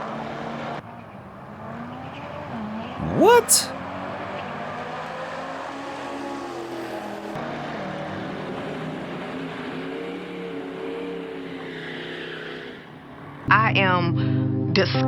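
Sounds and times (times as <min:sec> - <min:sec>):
car engines running: 0:00.0 - 0:13.5.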